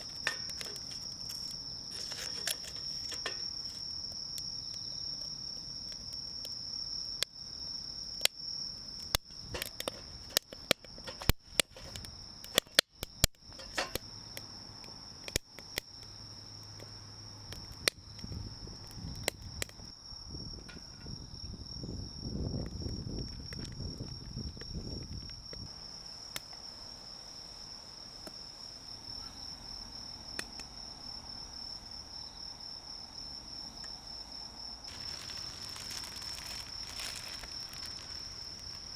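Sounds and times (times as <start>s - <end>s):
insects chirring: 0.0s - 38.9s
sharp clicks and snaps: 9.0s - 15.9s.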